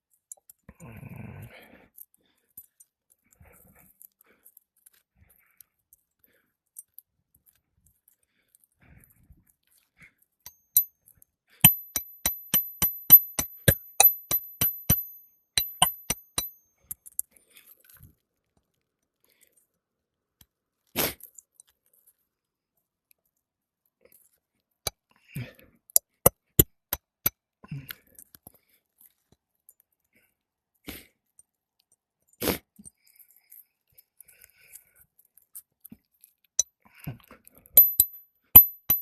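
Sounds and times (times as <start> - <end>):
hammer striking metal: 11.6 - 16.5, 37.8 - 39.0.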